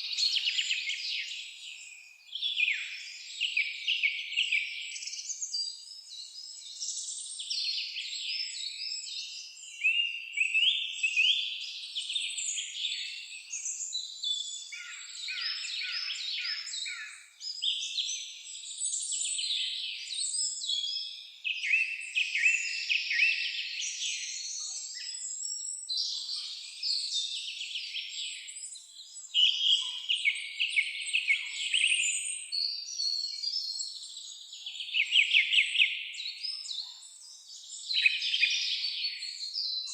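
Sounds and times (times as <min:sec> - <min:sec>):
songbirds chorus: 0:00.0 - 0:39.9.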